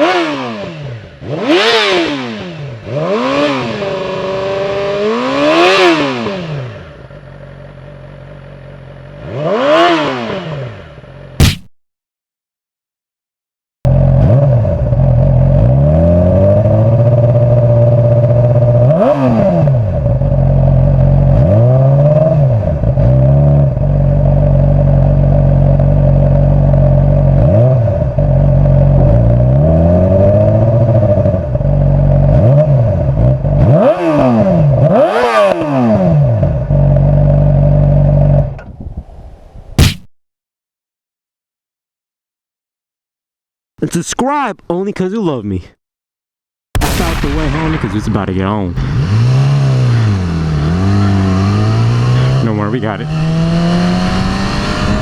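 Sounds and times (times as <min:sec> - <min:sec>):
motorcycle engine idling and revving: 0:00.0 - 0:11.7, 0:13.8 - 0:38.7, 0:48.2 - 0:55.0.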